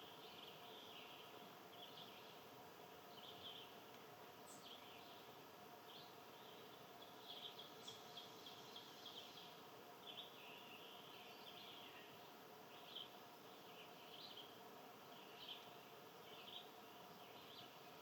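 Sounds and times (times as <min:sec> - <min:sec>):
outdoor background hiss: 0:00.0 - 0:18.0
small birds chirping: 0:00.0 - 0:18.0.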